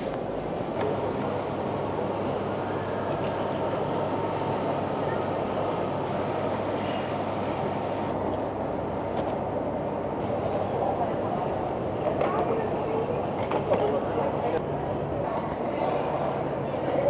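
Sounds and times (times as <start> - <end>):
train rumbling: 0.0 - 2.6.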